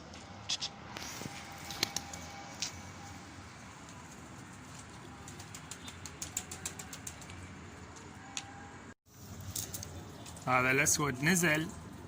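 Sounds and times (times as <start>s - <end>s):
pigeon wings flapping: 4.7s - 7.5s.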